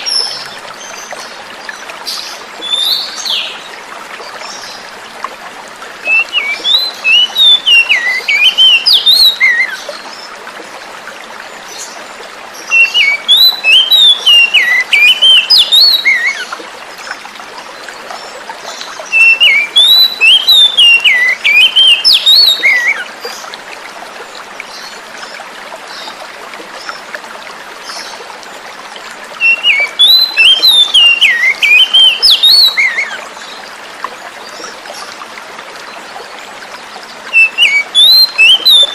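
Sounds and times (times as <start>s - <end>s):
running water: 0.0s - 38.9s
bird singing whistled notes: 6.1s - 9.8s, 12.7s - 16.4s, 19.1s - 23.0s, 29.4s - 33.2s, 37.3s - 38.9s.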